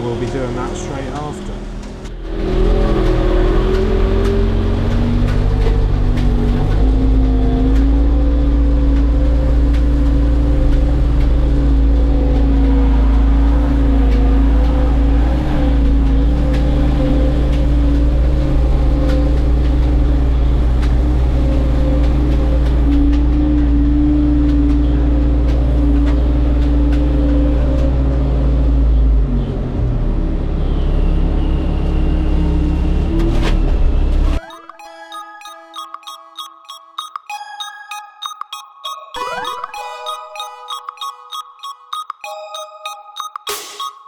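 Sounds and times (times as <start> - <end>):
diesel engine revving high: 0.0 - 22.9.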